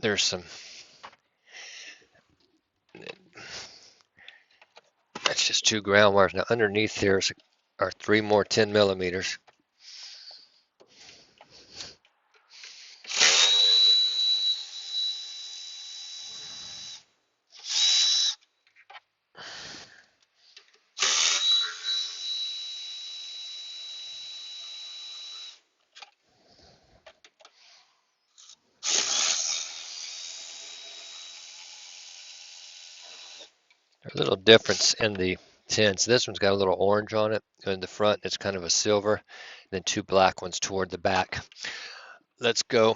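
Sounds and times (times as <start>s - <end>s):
power driver motor whine: 13.0s - 18.4s, 21.0s - 25.6s.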